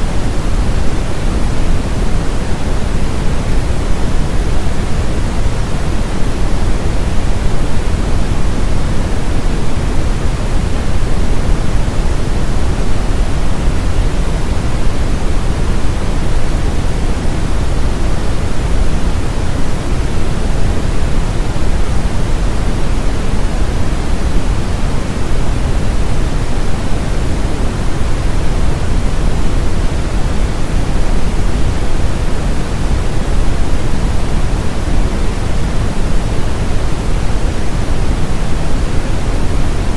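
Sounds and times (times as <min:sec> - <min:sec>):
brown noise hiss: 0:00.0 - 0:39.9.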